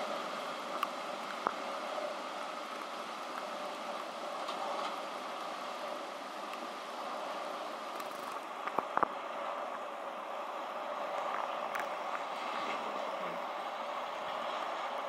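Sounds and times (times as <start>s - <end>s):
freight train rolling: 0.0s - 15.0s.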